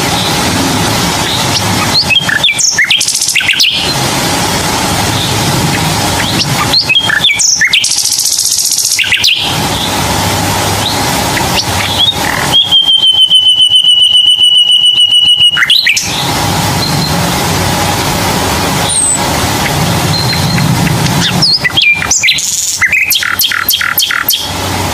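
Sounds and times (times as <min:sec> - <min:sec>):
low background hum: 0:00.0 - 0:24.9
bird trilling: 0:01.2 - 0:04.0, 0:05.2 - 0:10.0, 0:10.8 - 0:17.2, 0:18.8 - 0:24.6.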